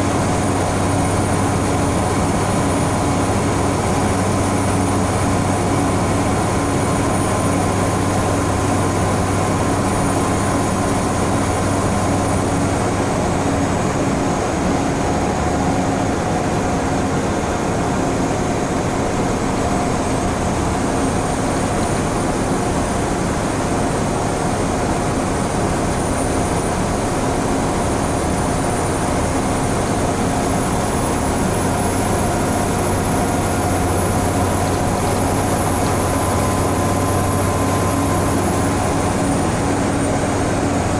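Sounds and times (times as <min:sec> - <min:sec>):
bus engine drone: 0:26.3 - 0:40.9.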